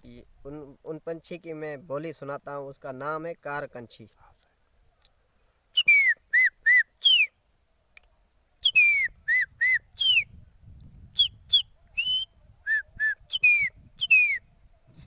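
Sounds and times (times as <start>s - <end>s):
man whistling bird call: 5.7s - 7.4s, 8.6s - 10.4s, 11.1s - 14.6s.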